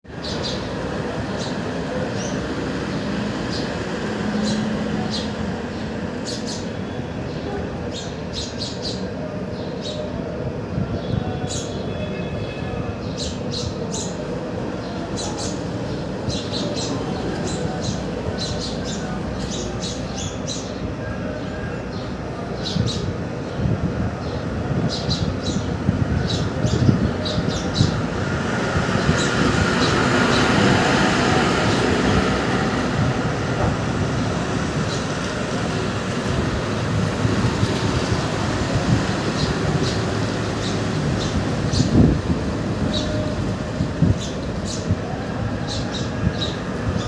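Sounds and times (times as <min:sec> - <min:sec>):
small birds chirping: 0:00.1 - 0:47.0.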